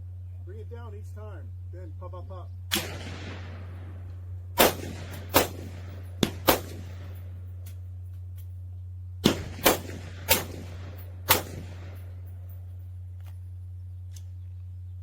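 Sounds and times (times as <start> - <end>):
steady low hum: 0.0 - 15.0
rifle shots echoing: 2.7 - 8.1, 9.2 - 13.0.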